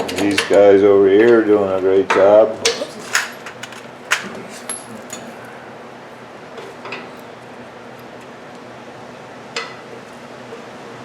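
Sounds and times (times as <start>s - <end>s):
hand tools clinking on metal: 0.0s - 0.8s, 2.6s - 5.6s.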